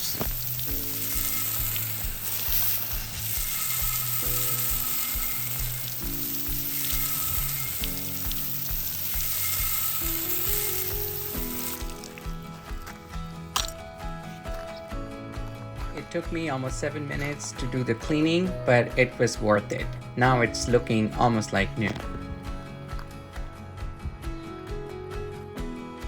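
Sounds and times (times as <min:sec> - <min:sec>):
water spraying on concrete: 0:00.0 - 0:13.8
background music: 0:00.0 - 0:26.0.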